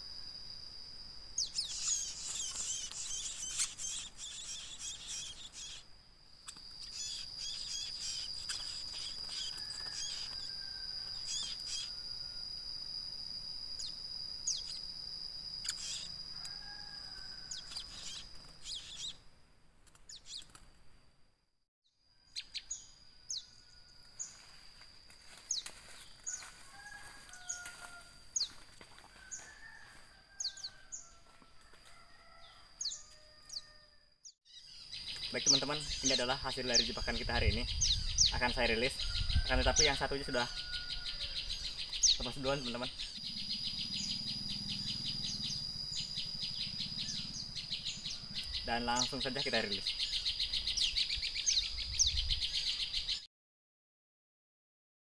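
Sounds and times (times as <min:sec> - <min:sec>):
small birds chirping: 0:01.3 - 0:12.1, 0:13.7 - 0:19.2, 0:19.8 - 0:20.6, 0:22.2 - 0:24.6, 0:25.2 - 0:26.5, 0:32.8 - 0:53.3.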